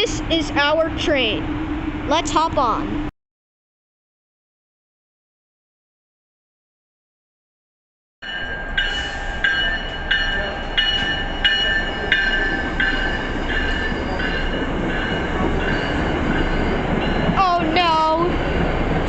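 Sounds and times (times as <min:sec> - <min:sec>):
train rumble: 0:00.0 - 0:03.1, 0:08.3 - 0:19.0
locomotive bell ringing: 0:08.2 - 0:19.0.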